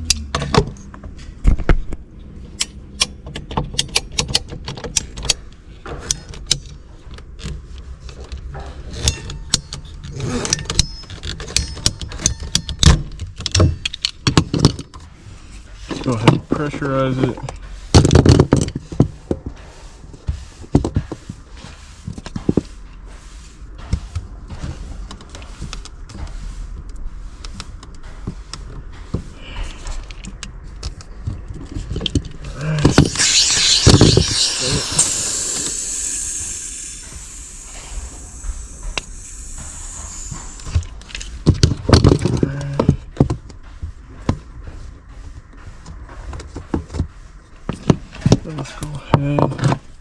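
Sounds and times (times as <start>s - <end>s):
loud gas burst: 32.6s - 41.0s
compressed gas hissing: 32.6s - 41.5s.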